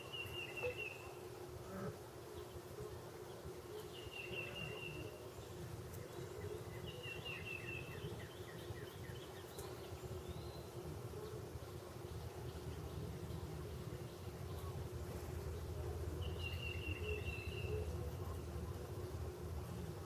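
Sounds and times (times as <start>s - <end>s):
small songbird singing: 0.0s - 1.2s, 3.3s - 10.8s, 15.5s - 17.9s
steady low hum: 0.0s - 20.0s.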